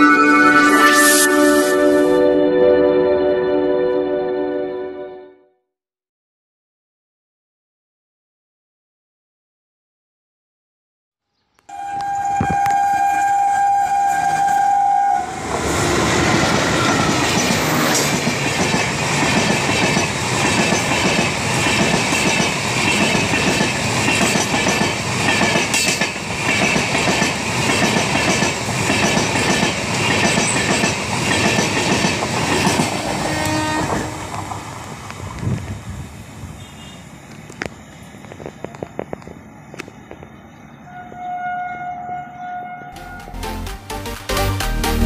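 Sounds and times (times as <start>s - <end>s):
locomotive horn blast: 0.0s - 5.4s, 11.7s - 17.9s, 32.9s - 34.6s, 36.5s - 37.2s, 40.8s - 43.5s
train rushing past: 11.7s - 42.1s.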